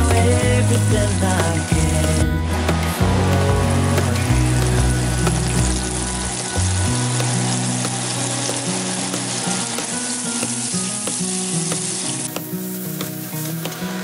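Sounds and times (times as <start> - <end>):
garlic frying in butter: 3.4 - 14.0.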